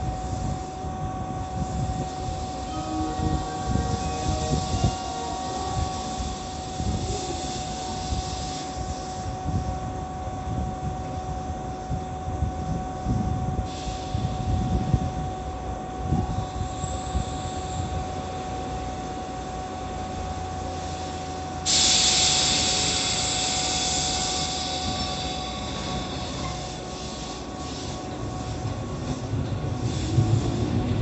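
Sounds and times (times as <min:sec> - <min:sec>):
electric train rumble and hum: 0:00.0 - 0:31.0
compressed air hiss: 0:01.6 - 0:03.1, 0:03.8 - 0:09.3, 0:13.7 - 0:14.4, 0:20.7 - 0:28.6, 0:29.8 - 0:30.8.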